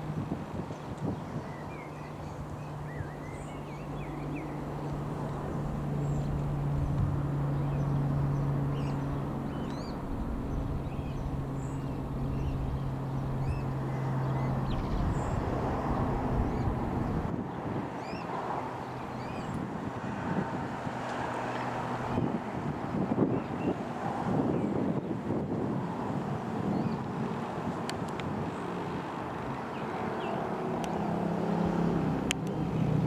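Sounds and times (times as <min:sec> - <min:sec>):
propeller aircraft droning: 0:00.0 - 0:33.0
small birds chirping: 0:01.4 - 0:17.3.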